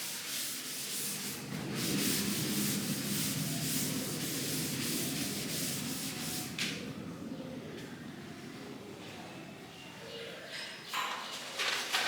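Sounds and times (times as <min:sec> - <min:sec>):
rhythmic rubbing strokes: 0:00.0 - 0:06.8.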